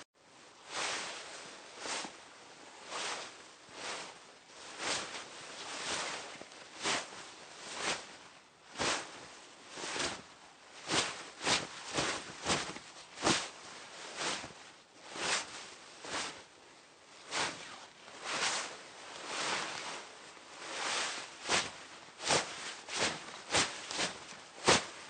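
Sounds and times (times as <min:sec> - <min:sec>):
fabric rustling and swishing: 0:00.3 - 0:25.0.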